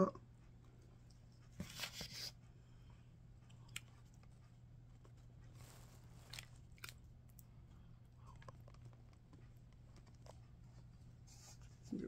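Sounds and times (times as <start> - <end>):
faint steady low hum: 0.0 - 12.0
quiet chewing: 2.8 - 11.8.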